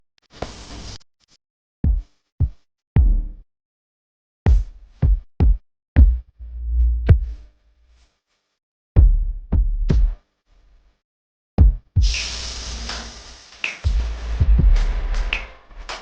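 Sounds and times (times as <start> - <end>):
electronic music with drum machine: 11.6 - 16.0.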